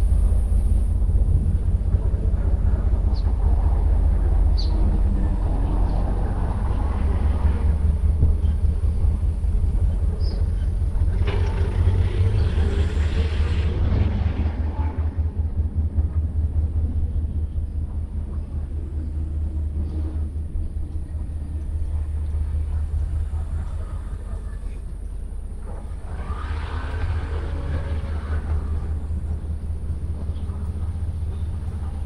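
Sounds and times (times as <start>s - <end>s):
vehicle rumbling past: 25.8s - 32.0s.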